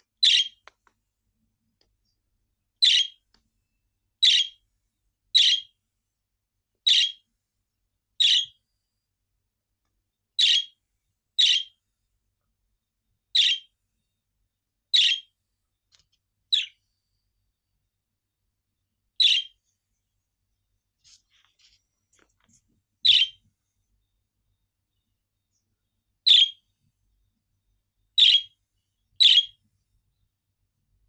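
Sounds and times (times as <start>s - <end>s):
budgerigar chirping: 0.2s - 0.6s, 2.8s - 3.2s, 4.2s - 4.6s, 5.3s - 5.7s, 6.8s - 7.2s, 8.2s - 8.6s, 10.4s - 10.8s, 11.4s - 11.8s, 13.3s - 13.7s, 14.9s - 15.3s, 16.5s - 16.8s, 19.2s - 19.6s, 23.0s - 23.4s, 26.2s - 26.6s, 28.2s - 28.6s, 29.2s - 29.6s.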